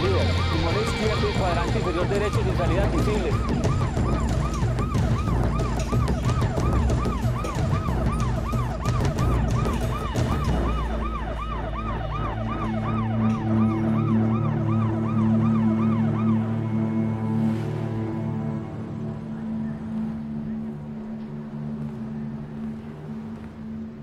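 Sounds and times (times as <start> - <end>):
ambulance siren yelping: 0.0 - 20.7
low music drone: 0.0 - 24.0.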